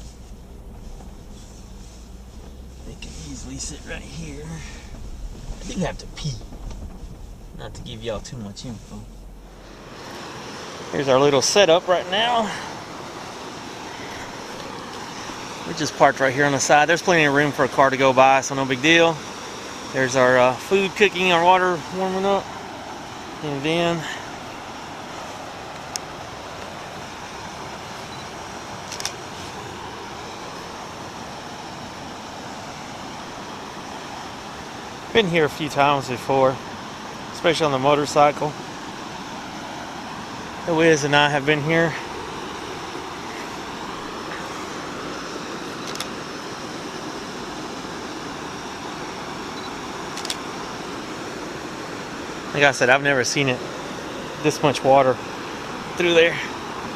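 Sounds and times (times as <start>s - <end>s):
creek water rushing: 0.0s - 56.9s
sharp clicks: 45.8s - 46.2s, 50.2s - 50.4s.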